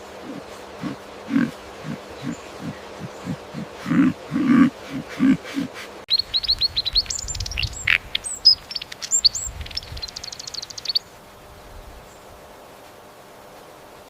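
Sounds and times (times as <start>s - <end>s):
songbird chirping and trilling: 0.0s - 5.0s, 6.1s - 11.1s
low animal grunts: 0.1s - 6.0s.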